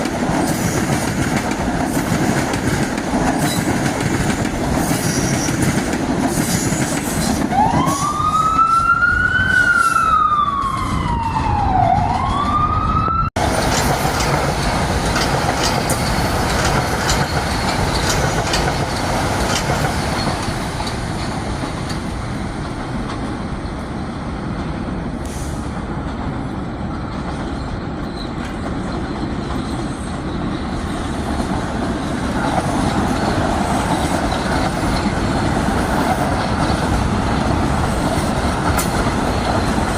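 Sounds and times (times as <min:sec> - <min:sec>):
train and street rumble: 0:00.0 - 0:39.9
emergency siren wailing: 0:07.5 - 0:13.4.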